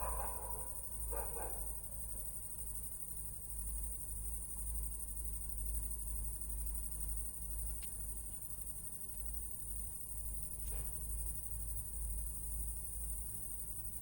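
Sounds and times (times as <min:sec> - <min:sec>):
crickets chirping: 0:00.0 - 0:14.0
faint ticks: 0:07.6 - 0:08.3.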